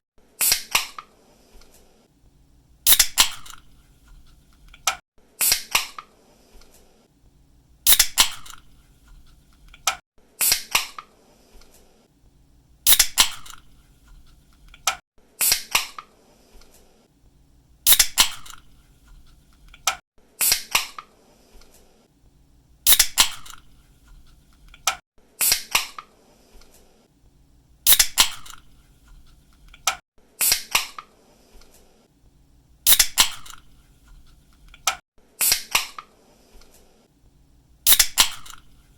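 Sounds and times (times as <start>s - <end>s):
can fizzing: 17.9s - 18.6s, 37.9s - 38.6s.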